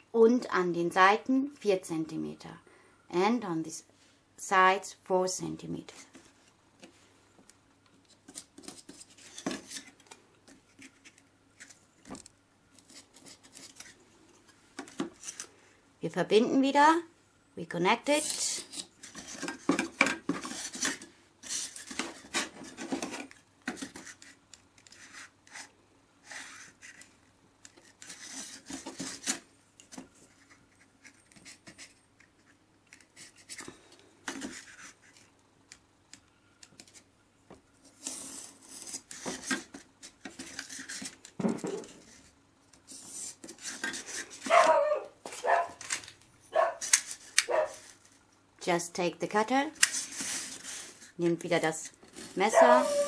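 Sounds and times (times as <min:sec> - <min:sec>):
pen scraping on styrofoam: 0:25.0 - 0:27.1
squeaky strokes on foam: 0:52.4 - 0:53.0.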